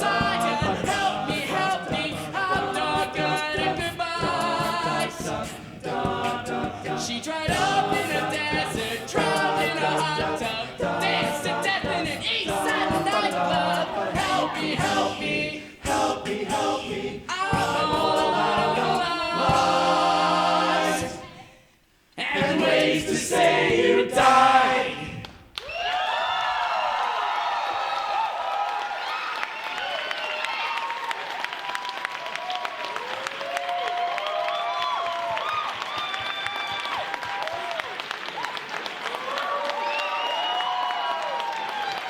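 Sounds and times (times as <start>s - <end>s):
beatboxed vocal percussion: 0.0s - 20.2s, 22.3s - 25.2s
male group singing in harmony: 0.0s - 21.5s, 22.2s - 25.2s.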